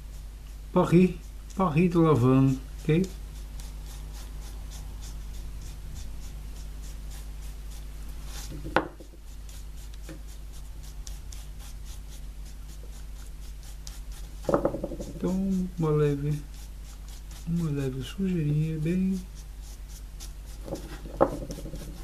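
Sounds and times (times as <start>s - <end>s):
brush scratching on surface: 0.0s - 22.0s
steady low hum: 0.0s - 22.0s
loud knock: 14.5s - 15.2s.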